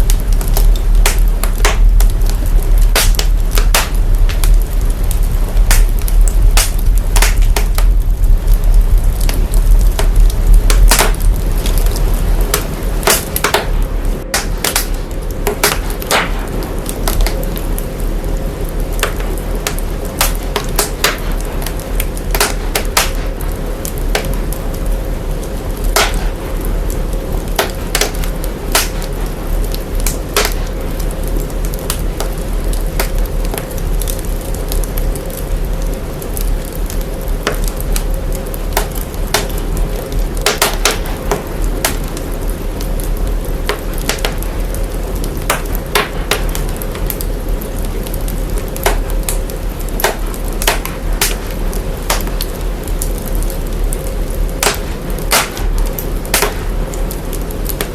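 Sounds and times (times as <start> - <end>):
deep bass rumble: 0.0 - 40.4
fire crackling and popping: 0.0 - 57.9.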